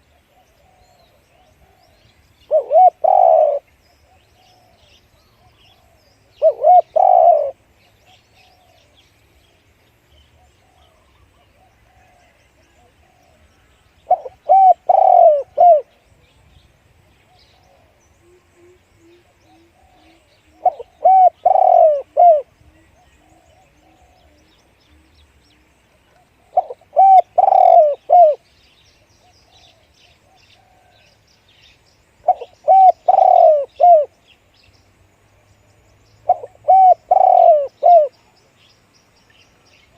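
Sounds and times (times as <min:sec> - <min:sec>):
dove cooing: 0:00.0 - 0:09.0, 0:10.3 - 0:16.0, 0:17.3 - 0:28.5, 0:29.2 - 0:31.2, 0:32.2 - 0:34.2, 0:36.2 - 0:38.2
faint bird calls: 0:00.0 - 0:39.9.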